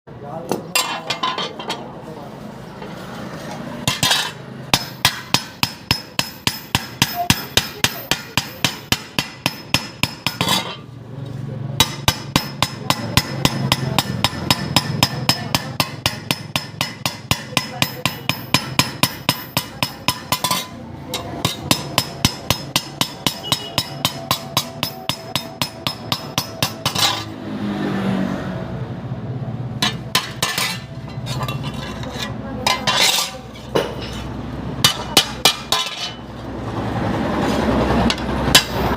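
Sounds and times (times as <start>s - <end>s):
hammer striking metal: 3.8s - 10.9s, 11.8s - 27.4s, 29.8s - 36.3s, 38.0s - 38.9s.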